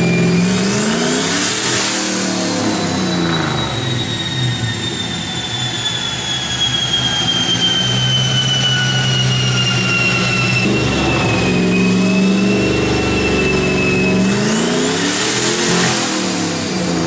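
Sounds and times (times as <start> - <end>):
drivetrain whine falling in pitch: 7.9 - 14.9
low engine note: 10.0 - 17.0.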